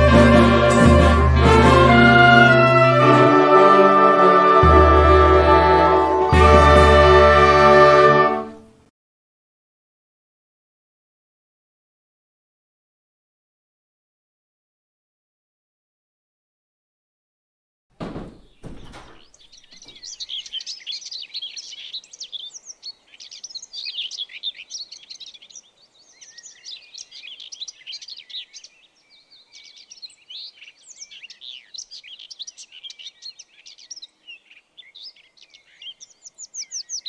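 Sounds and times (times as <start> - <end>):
small birds chirping: 18.0 - 37.0.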